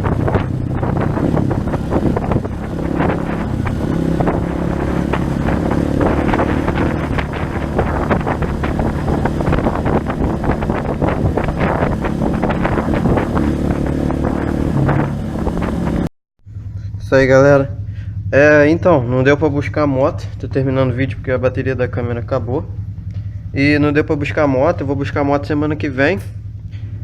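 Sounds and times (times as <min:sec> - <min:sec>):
wind buffeting on microphone: 0:00.0 - 0:16.1
motorcycle engine running: 0:00.0 - 0:27.0.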